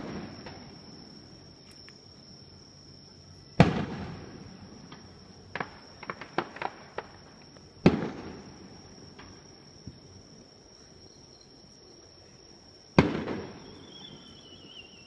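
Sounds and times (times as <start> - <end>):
sharp firework pops: 0.0 - 0.8, 3.6 - 8.5, 9.1 - 10.1, 13.0 - 14.4
fireworks booming: 0.0 - 1.3, 3.5 - 10.2, 12.9 - 15.0.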